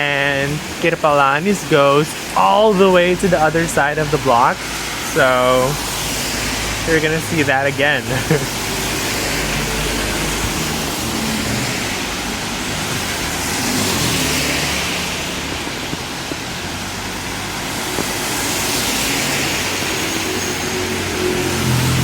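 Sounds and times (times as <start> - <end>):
tyre hiss on wet street: 0.0 - 22.0.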